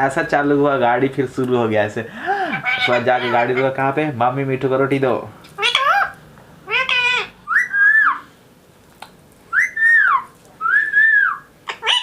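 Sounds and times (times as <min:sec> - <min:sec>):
parrot whistled calls: 0:05.6 - 0:08.3, 0:09.5 - 0:12.0.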